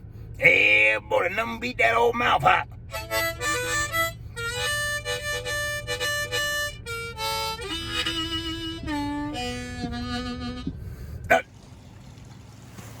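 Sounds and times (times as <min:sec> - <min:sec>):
harmonica playing a tune: 0:02.8 - 0:11.0.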